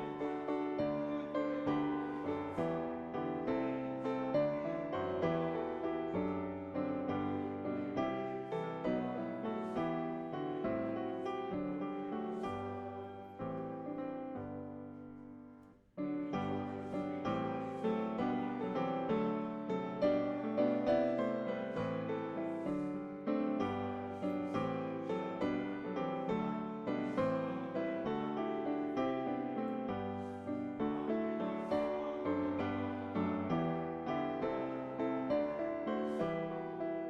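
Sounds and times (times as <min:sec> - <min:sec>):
piano playing hymn chords: 0:00.0 - 0:37.0.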